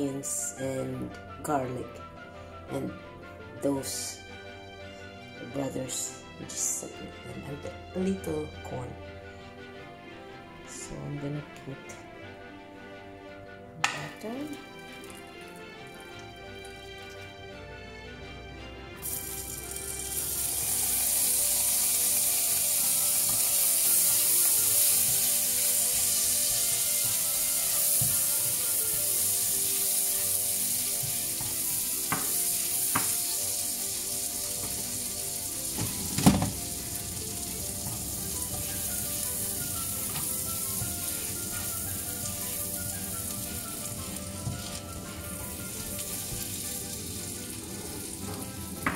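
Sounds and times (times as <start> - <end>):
butter and garlic sizzling: 14.1 - 17.5, 19.0 - 48.9
spatula knocking on pan: 31.0 - 33.2.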